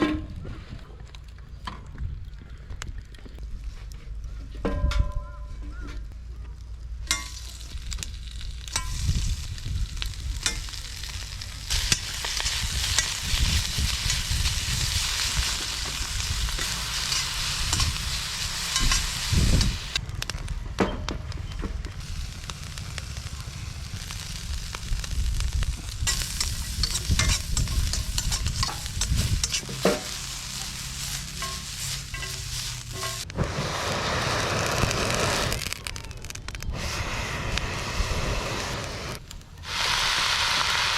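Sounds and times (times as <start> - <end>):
low rumble: 0.0 - 39.3
food sizzling in a pan: 7.1 - 20.0, 22.0 - 35.7, 36.8 - 40.9.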